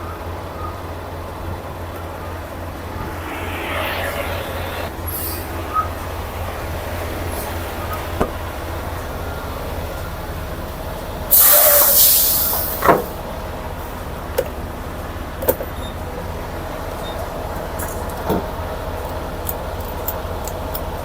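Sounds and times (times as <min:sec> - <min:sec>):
air brake hiss: 0:11.4 - 0:12.8.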